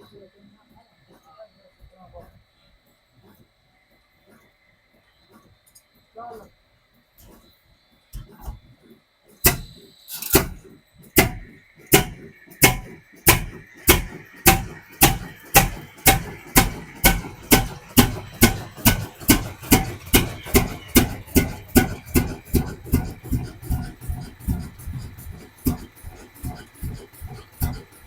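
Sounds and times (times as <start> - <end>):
diesel engine starting: 9.4 - 28.0.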